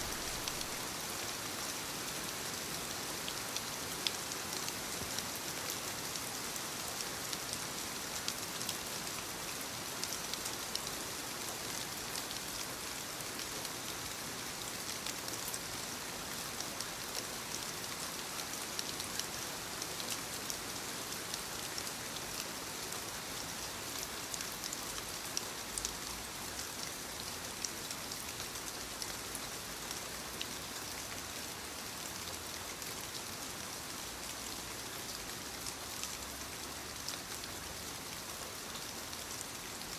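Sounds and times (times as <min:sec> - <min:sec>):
rain pattering: 0:00.0 - 0:01.4.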